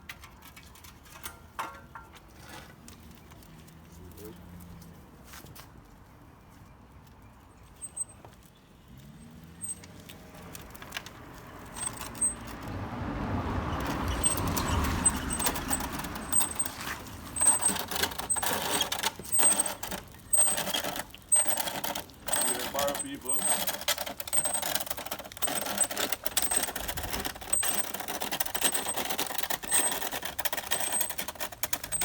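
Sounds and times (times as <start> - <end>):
vehicle passing: 3.1 - 5.2, 8.7 - 23.4.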